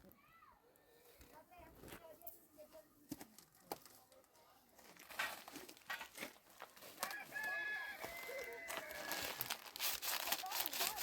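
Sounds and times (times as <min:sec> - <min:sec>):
rustling: 0:03.2 - 0:11.0.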